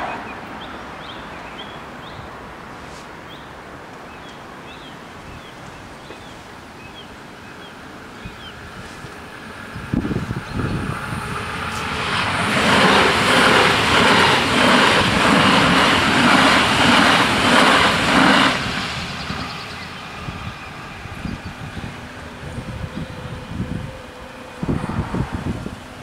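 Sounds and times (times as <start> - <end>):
train running gear rushing: 9.0 - 26.0.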